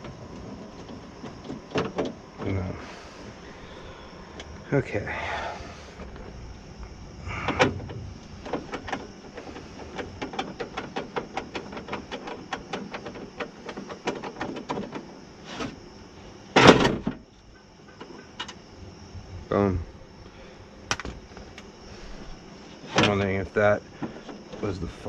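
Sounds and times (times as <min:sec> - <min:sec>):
loud clunk: 0:16.5 - 0:17.2.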